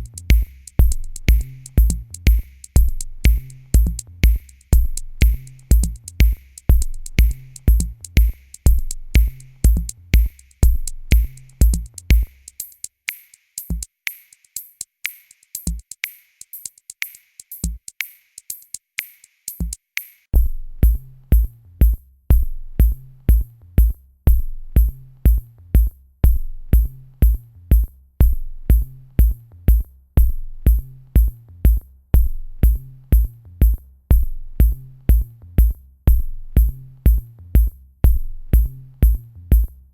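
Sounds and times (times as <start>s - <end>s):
drum machine kicks: 0.0s - 12.9s, 13.6s - 13.9s, 15.6s - 18.0s, 20.4s - 39.8s
fast hi-hat ticks: 0.0s - 20.3s.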